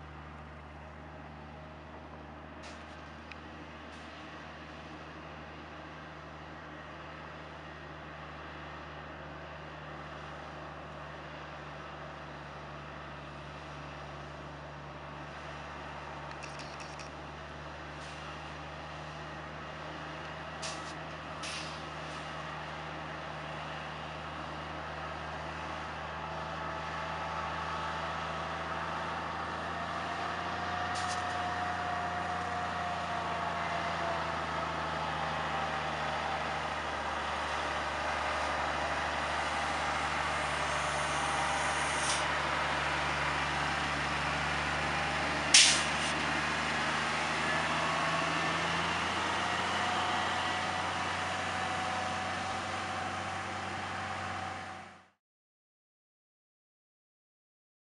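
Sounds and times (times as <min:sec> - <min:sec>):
diesel truck engine running: 0:00.0 - 0:55.2
sharp click: 0:45.6 - 0:45.9.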